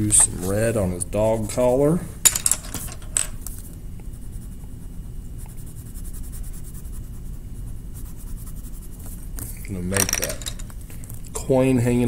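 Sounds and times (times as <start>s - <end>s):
colouring strokes scratching paper: 4.0s - 9.6s.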